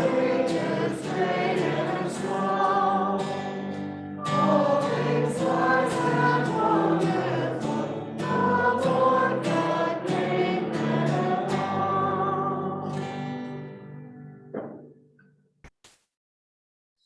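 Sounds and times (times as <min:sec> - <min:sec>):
choir singing: 0:00.0 - 0:13.1.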